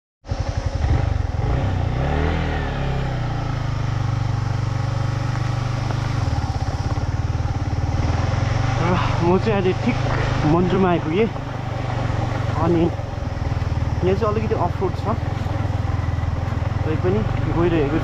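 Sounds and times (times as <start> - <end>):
motorcycle engine revving: 0.2 - 18.0.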